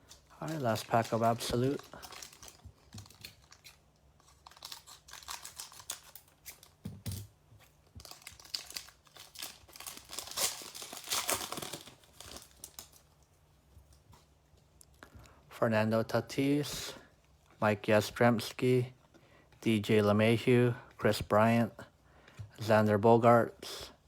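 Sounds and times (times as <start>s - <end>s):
card pack wrapper crinkling: 0.0s - 6.8s, 7.7s - 13.2s.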